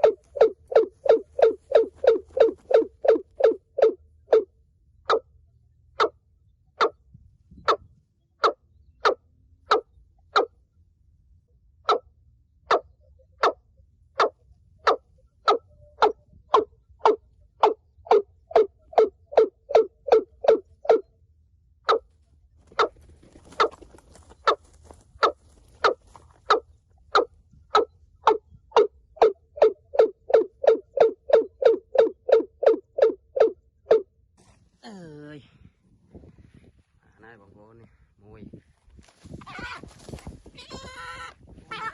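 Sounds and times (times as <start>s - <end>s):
watercock calling: 0.0s - 4.5s.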